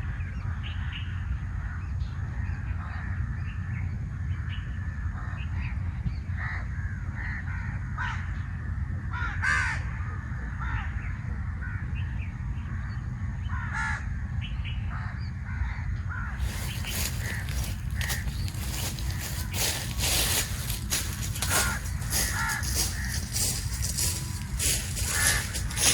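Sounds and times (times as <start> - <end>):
crows cawing: 6.4 - 8.4, 9.1 - 10.0, 13.5 - 14.1, 15.0 - 25.9
sharp crackles: 16.4 - 25.9
low rumble: 16.5 - 25.9.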